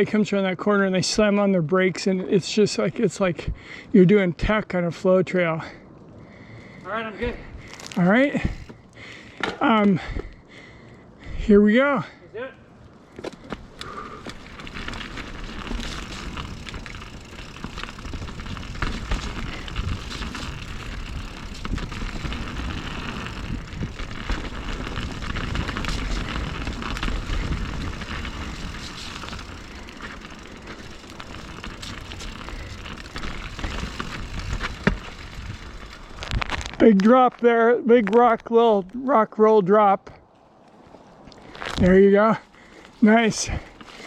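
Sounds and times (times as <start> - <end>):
low rumble of wind on microphone: 6.0 - 8.9, 12.8 - 36.8
bike tyres crunching over rock: 7.3 - 10.1, 13.1 - 39.0, 40.4 - 44.0
bike rattling with sharp clicks: 13.2 - 36.8.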